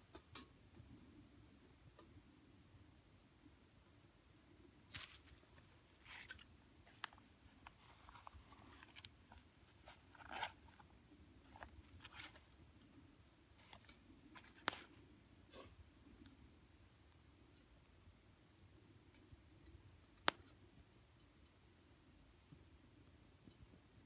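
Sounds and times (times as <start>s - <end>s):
faint clicks and taps: 13.6s - 15.0s, 19.0s - 21.6s.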